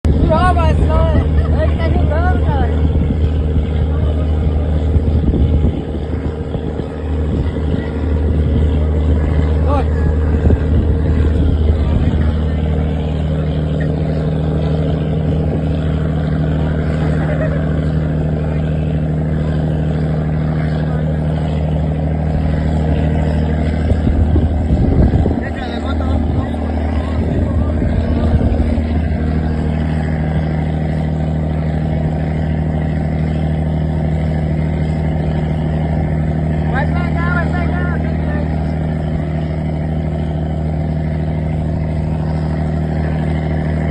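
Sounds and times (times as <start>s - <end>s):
wind noise: 0.0s - 13.2s, 22.2s - 31.0s
boat diesel engine droning: 0.0s - 43.9s
water wash: 0.0s - 43.9s.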